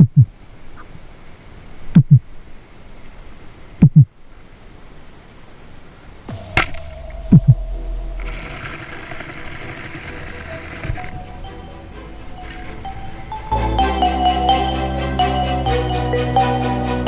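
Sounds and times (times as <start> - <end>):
deep double thumps: 0.0 - 0.3, 6.3 - 9.2
sharp crack with low rumble: 6.3 - 10.6.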